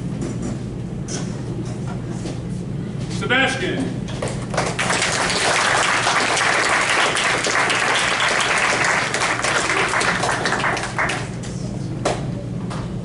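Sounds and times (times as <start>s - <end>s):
audience applauding: 4.5s - 11.4s.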